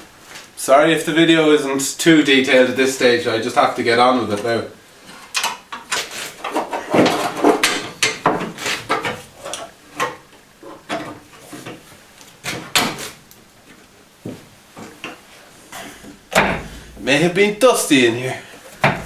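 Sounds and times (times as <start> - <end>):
car parts and tools clattering: 4.2 - 13.2, 14.3 - 17.2, 18.6 - 19.0.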